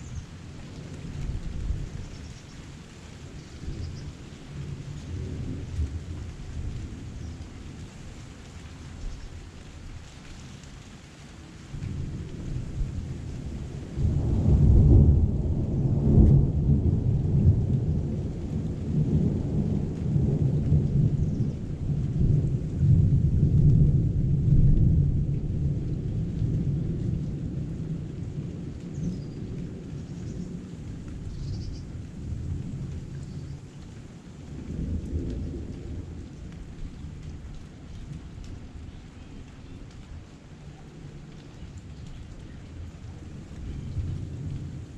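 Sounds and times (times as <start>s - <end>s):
heavy rain: 0.0s - 44.9s
thunder rumbling: 11.7s - 40.3s.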